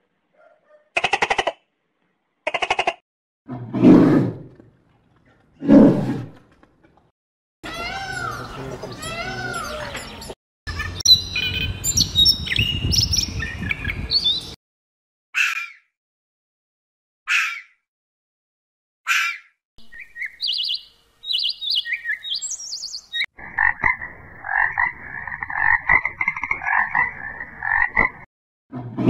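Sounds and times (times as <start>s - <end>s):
high-pitched birdsong chirps: 7.6s - 14.6s, 19.1s - 23.3s.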